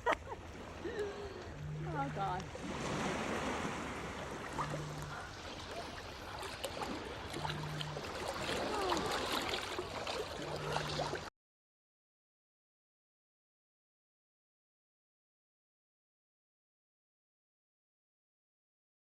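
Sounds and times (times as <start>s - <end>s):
sea water lapping at shore: 0.0s - 11.3s.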